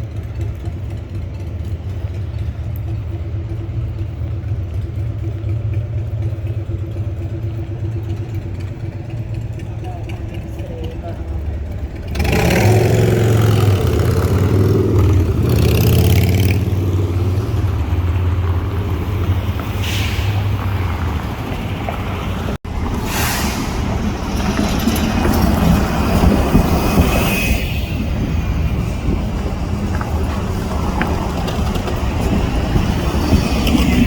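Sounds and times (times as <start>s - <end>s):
heavy vehicle engine rumbling: 0.0s - 34.0s
short hisses: 19.8s - 20.6s, 23.0s - 23.9s.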